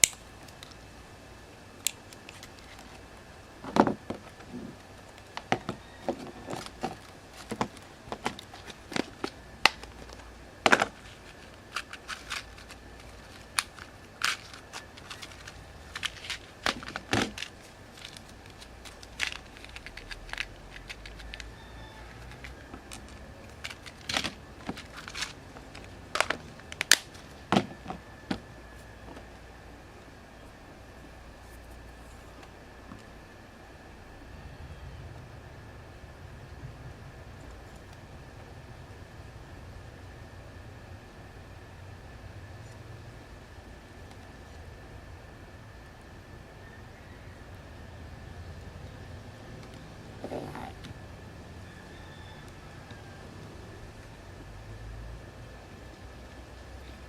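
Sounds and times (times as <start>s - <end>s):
faint high hum: 0.0s - 57.0s
hands handling small tools: 1.8s - 29.3s.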